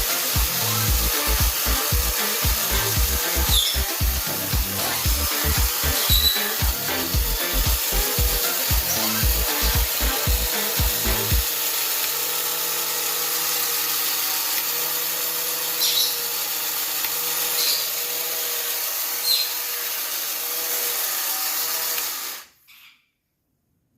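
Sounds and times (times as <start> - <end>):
toy electric motor and gears: 0.0 - 23.0
short high chirp: 6.0 - 6.4.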